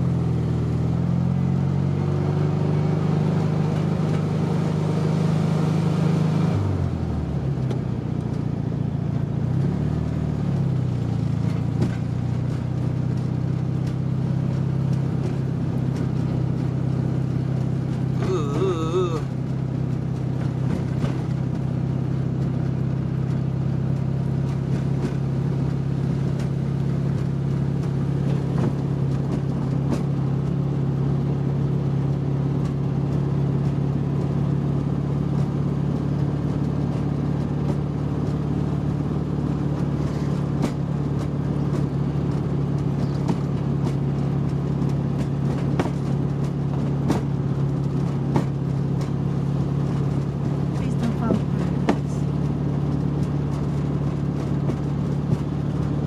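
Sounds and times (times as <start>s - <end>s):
car engine droning: 0.0s - 56.0s
suspension clicks and knocks: 39.8s - 56.0s.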